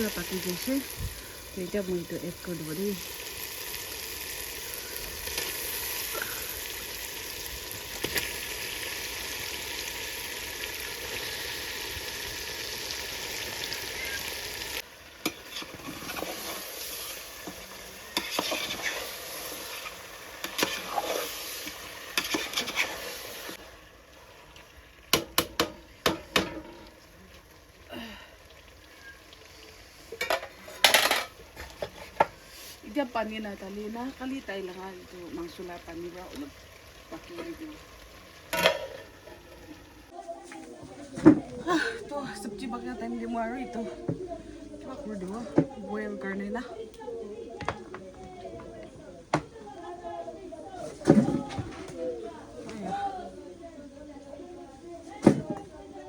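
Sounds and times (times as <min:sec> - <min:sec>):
chicken sizzling in a pan: 0:00.0 - 0:40.8
spatula scraping a pan: 0:15.2 - 0:23.6.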